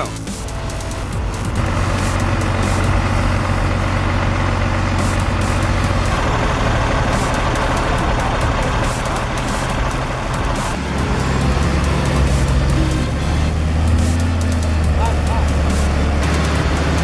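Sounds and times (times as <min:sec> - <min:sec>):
truck diesel engine labouring: 0:00.0 - 0:17.0.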